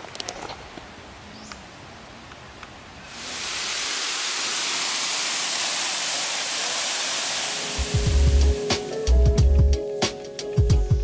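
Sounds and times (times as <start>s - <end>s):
waterfall rushing water: 2.8s - 9.0s.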